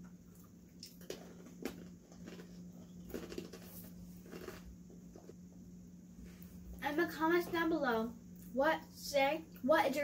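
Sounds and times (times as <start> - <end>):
steady low hum: 0.0 - 10.0
children chewing crunchy snacks: 0.3 - 5.4.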